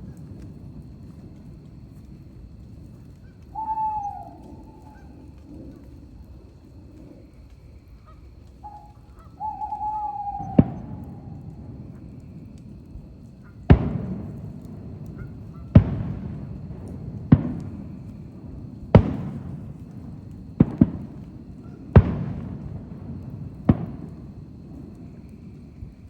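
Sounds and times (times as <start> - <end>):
fireworks bangs with rumbling echo: 0.0 - 5.0, 9.4 - 26.0.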